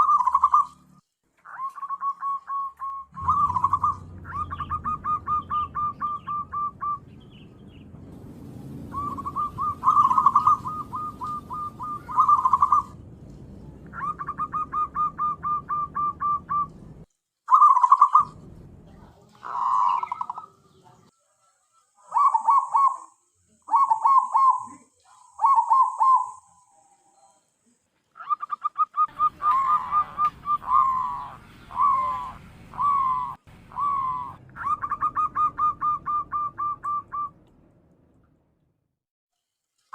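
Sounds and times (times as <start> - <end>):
dove cooing: 0.0 - 0.8, 1.4 - 7.2, 8.9 - 13.0, 13.9 - 16.8, 19.3 - 20.8, 22.0 - 26.6, 28.2 - 37.3.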